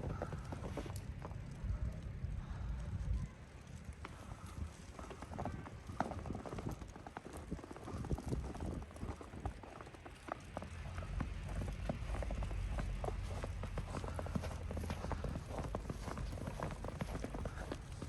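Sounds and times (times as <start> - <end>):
wind buffeting microphone: 0.0 - 18.0
footsteps on snow: 4.0 - 18.0.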